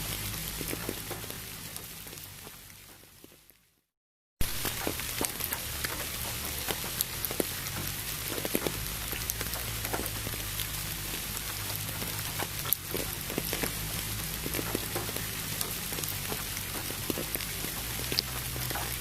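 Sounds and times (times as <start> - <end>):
rain drops ticking: 0.0 - 3.7, 4.4 - 19.0
pink noise: 4.4 - 19.0.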